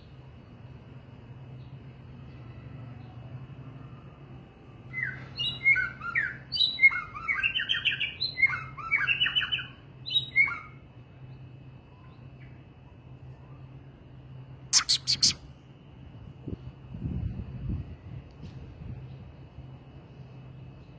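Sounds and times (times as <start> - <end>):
songbird singing: 4.9 - 12.6, 14.7 - 15.5.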